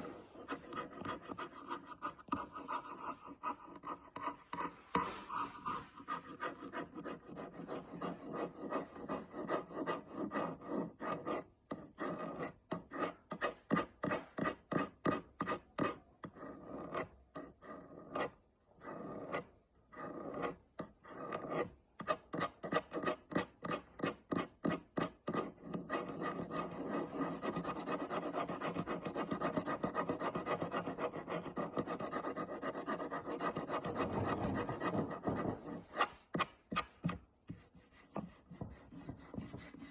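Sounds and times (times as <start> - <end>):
fingernails scratching: 15.1 - 39.9.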